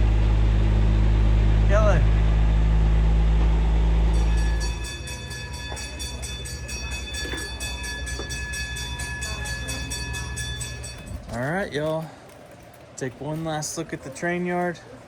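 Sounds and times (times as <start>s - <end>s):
cog train droning: 0.0s - 11.7s
fast repeating ring: 4.0s - 11.5s.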